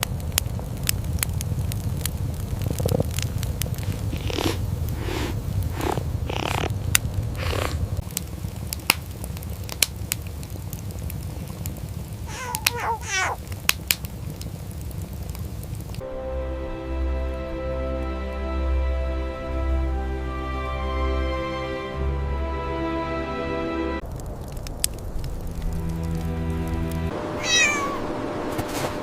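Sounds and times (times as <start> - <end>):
sharp crackling clicks: 0.0 - 16.0, 24.0 - 27.1
cat purring: 2.6 - 8.0, 12.3 - 13.4
breathy rasps: 3.8 - 6.8, 7.4 - 8.0, 12.3 - 13.4
cat meowing: 12.3 - 13.4, 27.4 - 28.1
soft music: 16.0 - 24.0, 25.6 - 27.4.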